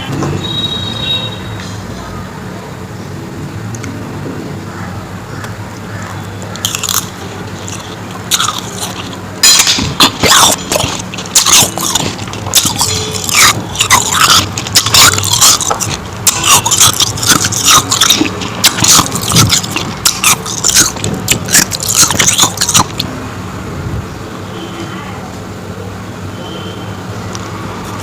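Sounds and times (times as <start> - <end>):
crunching and chewing ice: 5.4 - 23.1.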